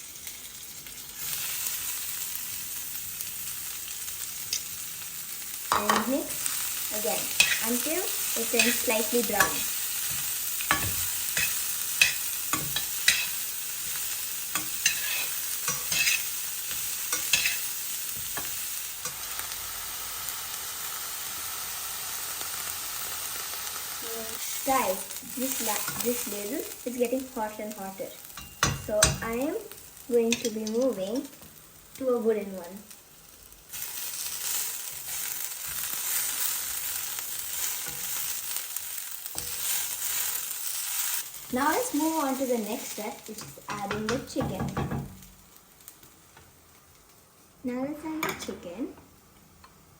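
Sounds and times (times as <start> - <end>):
onions sizzling in hot oil: 0.0 - 49.9
metal ladle scraping a pan: 14.6 - 16.3, 17.2 - 17.7.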